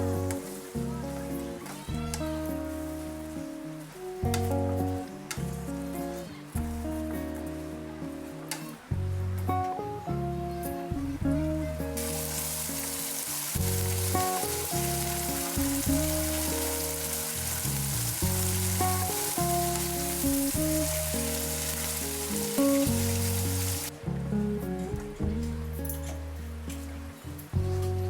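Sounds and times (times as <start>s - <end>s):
background music: 0.0s - 28.0s
food sizzling in hot oil: 12.0s - 23.9s.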